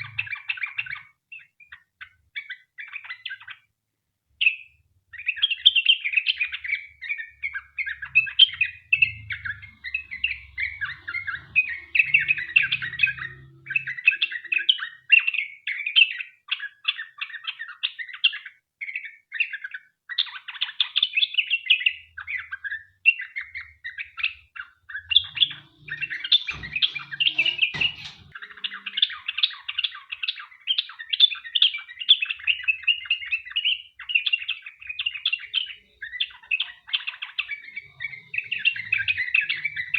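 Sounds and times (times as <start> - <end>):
bird chattering song: 0.0 - 3.7, 4.4 - 39.9
sharp knocks: 25.3 - 28.4.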